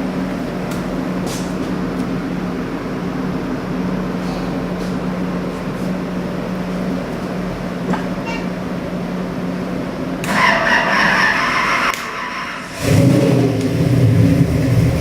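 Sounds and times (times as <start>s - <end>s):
v-eight engine running loudly: 10.2s - 15.0s.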